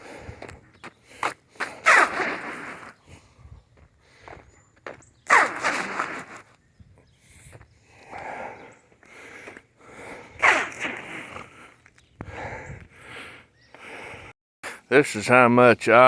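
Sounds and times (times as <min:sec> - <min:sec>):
footsteps crunching on ice: 0:00.0 - 0:06.6.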